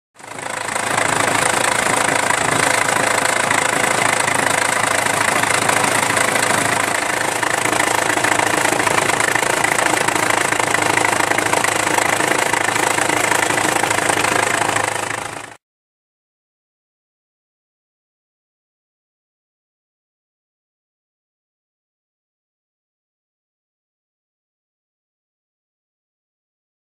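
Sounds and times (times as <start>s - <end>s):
car engine running: 0.2s - 15.6s.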